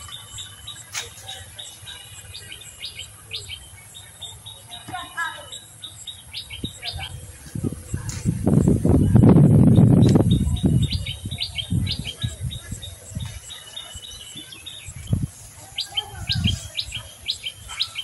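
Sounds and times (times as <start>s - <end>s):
leafy branches rustling: 0.0s - 4.1s, 6.7s - 18.0s
small bird chirping: 0.0s - 18.0s.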